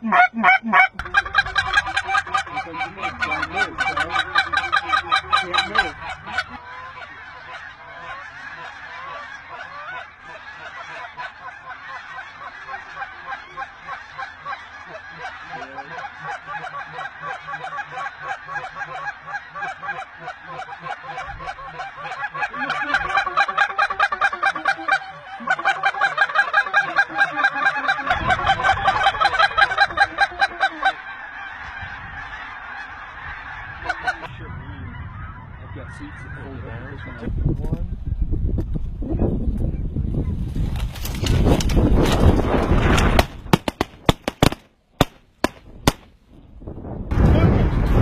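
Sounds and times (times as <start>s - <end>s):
flock of geese honking: 0.0s - 37.9s.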